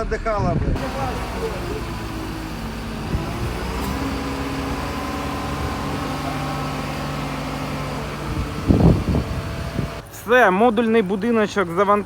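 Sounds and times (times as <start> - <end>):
heavy vehicle engine running: 0.8 - 12.0.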